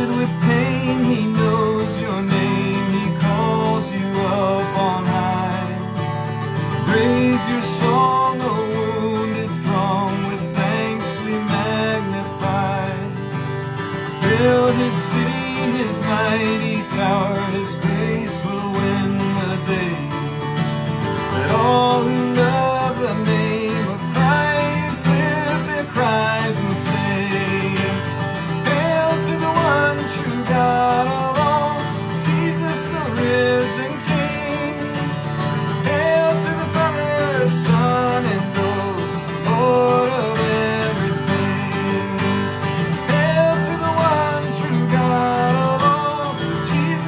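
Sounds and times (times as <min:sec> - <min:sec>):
acoustic guitar strumming: 0:00.0 - 0:47.0
person singing: 0:00.0 - 0:47.0.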